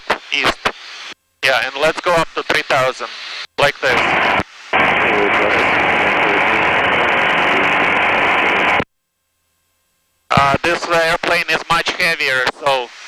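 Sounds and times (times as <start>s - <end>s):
radio static hiss: 0.0s - 8.9s, 10.3s - 13.0s
faint garbled radio voice: 0.1s - 0.8s, 1.4s - 8.4s, 10.3s - 13.0s.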